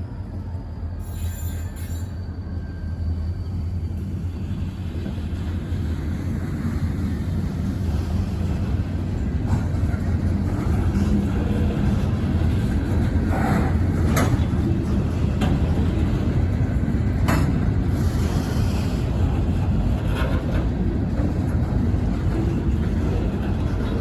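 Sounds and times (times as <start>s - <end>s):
freight train rumbling by: 0.0s - 24.0s
wheels squealing: 0.1s - 4.3s.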